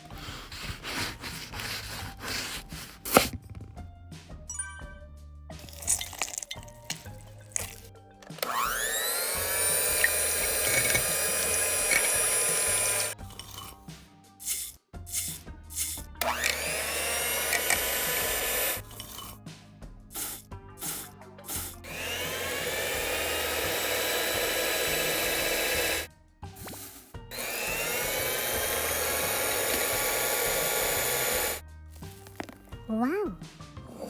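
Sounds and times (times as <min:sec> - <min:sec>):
electric hand mixer whirring: 0:00.0 - 0:03.4, 0:08.3 - 0:13.2, 0:16.2 - 0:19.3, 0:20.2 - 0:31.6.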